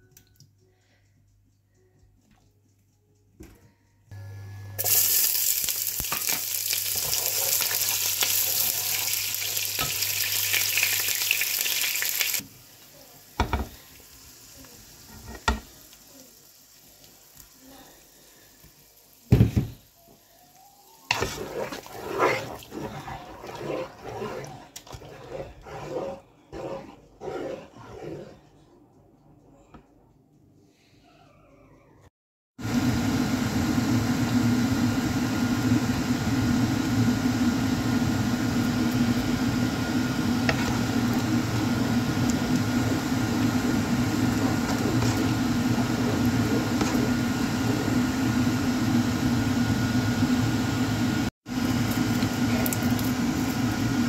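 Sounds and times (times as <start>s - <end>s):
onions sizzling in hot oil: 4.8s - 22.6s, 51.5s - 54.0s
wooden spoon stirring stew: 21.1s - 28.4s, 40.2s - 49.2s.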